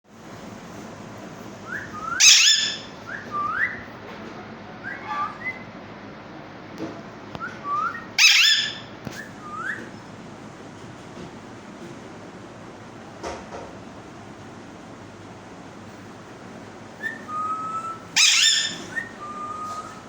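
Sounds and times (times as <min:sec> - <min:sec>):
parakeet whistles: 0:01.6 - 0:03.9, 0:04.8 - 0:05.7, 0:07.4 - 0:10.0, 0:17.0 - 0:20.0
parakeet screech: 0:02.2 - 0:02.9, 0:08.2 - 0:08.9, 0:18.2 - 0:19.1.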